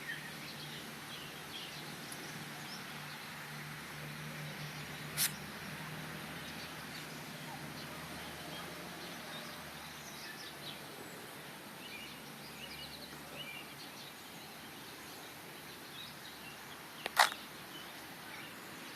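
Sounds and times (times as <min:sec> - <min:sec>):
outdoor background noise: 0:00.0 - 0:18.9
sharp click: 0:05.2 - 0:05.4, 0:17.0 - 0:17.4.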